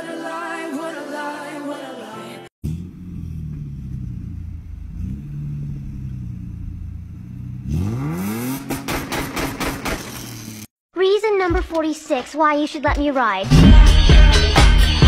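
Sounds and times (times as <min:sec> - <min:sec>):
car engine revving: 0:02.6 - 0:10.7
engine crackling and clatter: 0:02.6 - 0:10.7.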